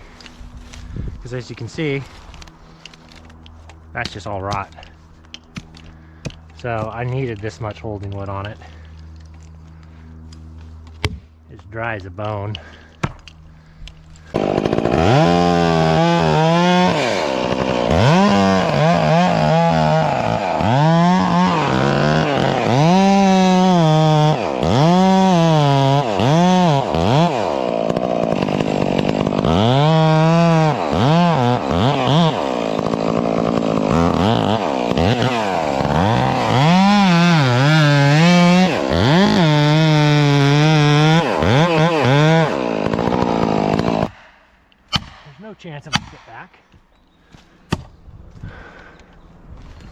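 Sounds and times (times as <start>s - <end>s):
chainsaw cutting wood: 14.0s - 46.4s.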